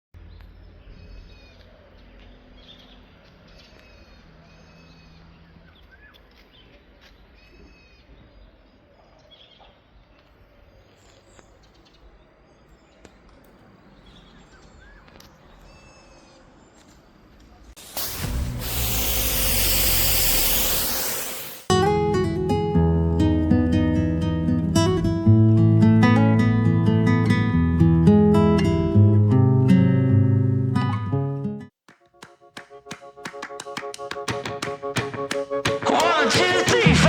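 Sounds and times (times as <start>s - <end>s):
birds chirping: 0.2s - 21.6s
pressure washer spraying: 17.8s - 21.7s.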